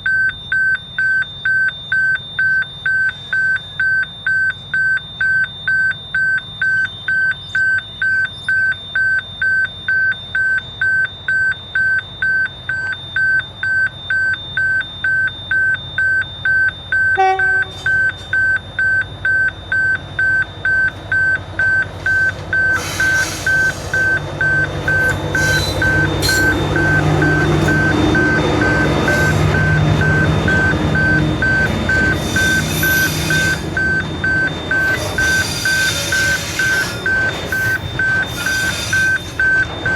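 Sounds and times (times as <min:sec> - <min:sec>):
level crossing alarm beeping: 0:00.0 - 0:39.9
train rumble and wheel noise: 0:17.1 - 0:39.9.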